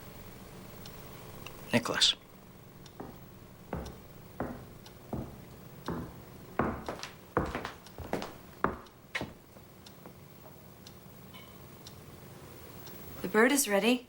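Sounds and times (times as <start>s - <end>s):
short knocks: 3.0s - 9.4s.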